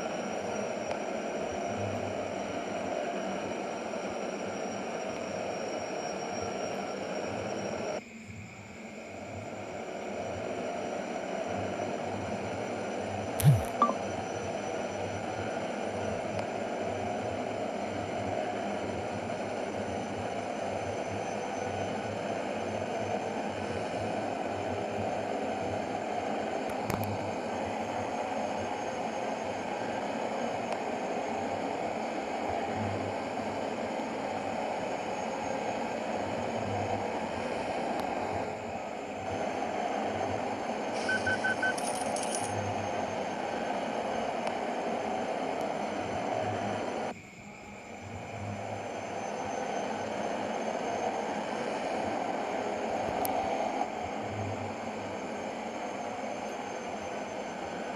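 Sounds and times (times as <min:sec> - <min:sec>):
short high beeping: 0:13.4 - 0:14.0, 0:41.0 - 0:42.0.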